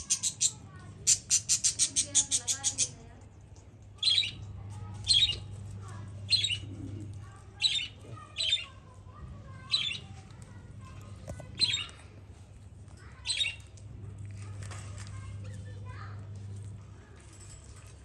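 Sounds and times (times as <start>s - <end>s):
parakeet squawking: 0.0s - 3.0s, 6.3s - 6.6s
steady low hum: 0.0s - 18.0s.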